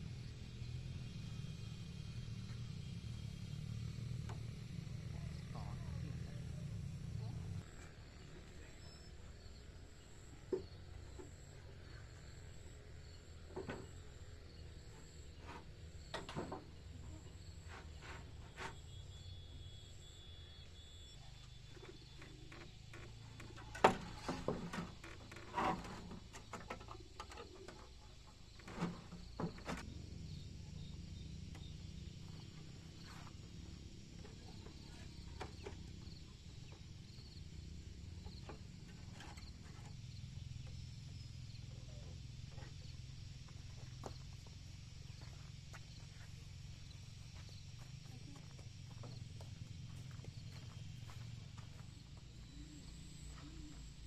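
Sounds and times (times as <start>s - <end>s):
steady low hum: 0.0s - 54.0s
faint insect-like high tones: 18.5s - 22.8s, 39.1s - 54.0s.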